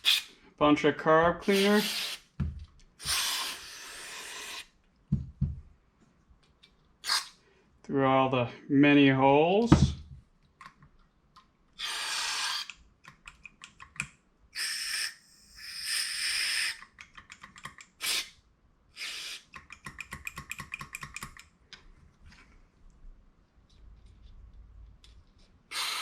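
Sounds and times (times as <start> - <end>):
aerosol spray hissing: 1.4 - 2.2, 3.0 - 4.7, 25.7 - 26.0.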